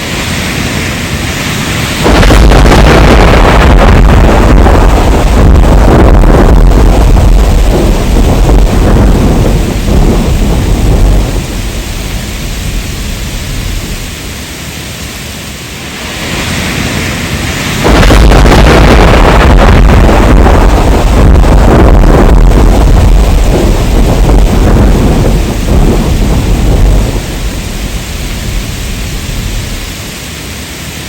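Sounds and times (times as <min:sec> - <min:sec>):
deep rolling thunder: 0:00.0 - 0:14.5, 0:16.2 - 0:30.3
heavy rain: 0:00.0 - 0:31.0.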